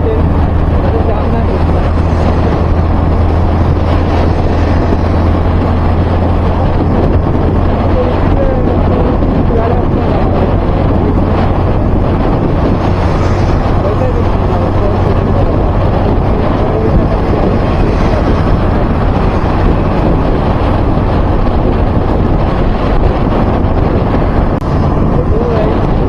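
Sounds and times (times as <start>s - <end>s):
vehicle and road noise: 0.0s - 26.0s
wind buffeting microphone: 0.0s - 26.0s.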